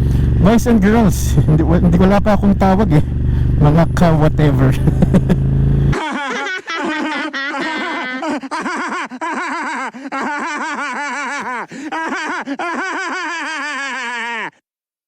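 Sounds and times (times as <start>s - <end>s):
high-pitched laughing: 4.8s - 14.5s.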